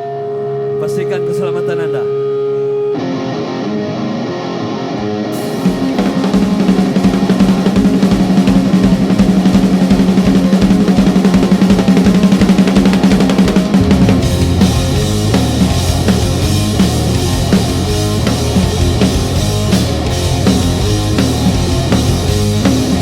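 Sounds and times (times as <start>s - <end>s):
live rock band playing: 2.8s - 23.0s
drum kit beating rapidly: 5.4s - 23.0s
held low guitar note: 13.7s - 22.7s.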